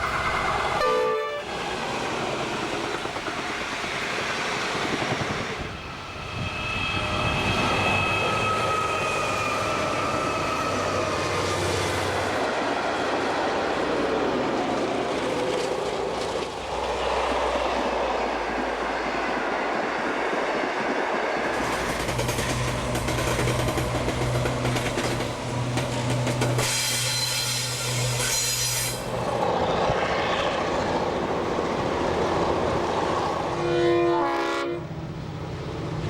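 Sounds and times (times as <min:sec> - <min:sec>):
high-pitched squeal: 0:05.1 - 0:12.3, 0:26.4 - 0:31.0
train wheels clattering over rail joints: 0:21.4 - 0:29.1.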